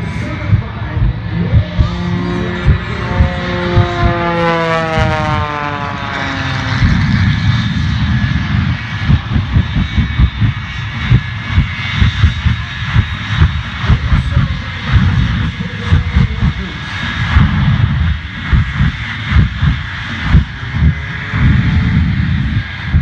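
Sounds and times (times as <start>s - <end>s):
aircraft flying past: 0.0s - 23.0s
steady low rumble: 0.0s - 23.0s
wind buffeting microphone: 0.0s - 23.0s.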